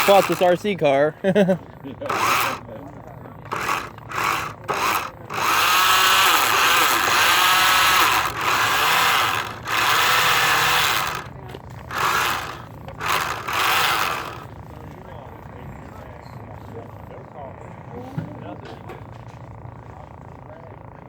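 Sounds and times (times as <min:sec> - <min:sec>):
radio-controlled car motor whining: 0:00.0 - 0:00.9, 0:02.0 - 0:02.7, 0:03.4 - 0:14.5.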